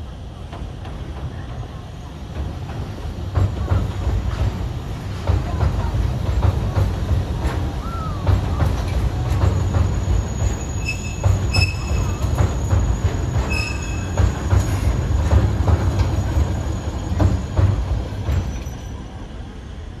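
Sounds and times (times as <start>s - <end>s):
train rumbling on track: 0.0s - 20.0s
high-pitched wheel squeals: 7.8s - 15.0s.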